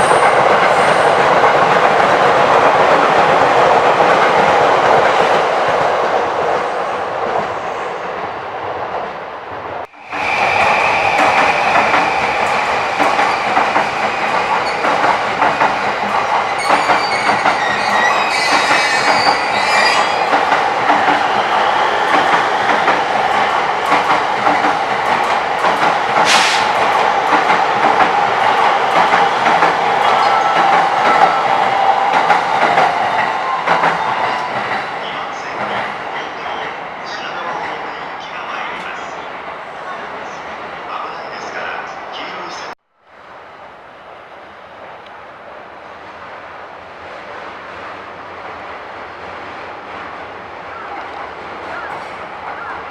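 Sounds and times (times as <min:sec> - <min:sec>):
electric train whine: 0:09.8 - 0:35.8
high wheel squeal: 0:10.0 - 0:15.0, 0:16.2 - 0:20.4
train wheels clattering over rails: 0:10.2 - 0:36.0.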